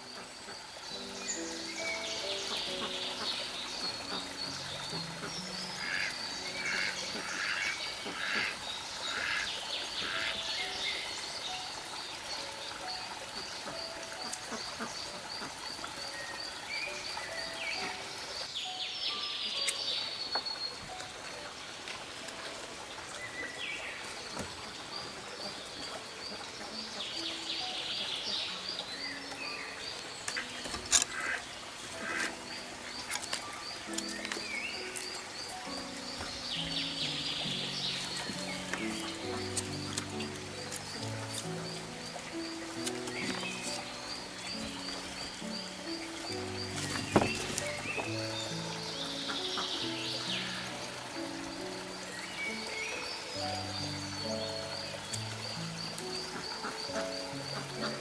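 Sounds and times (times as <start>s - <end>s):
soft background music: 0.0s - 58.0s.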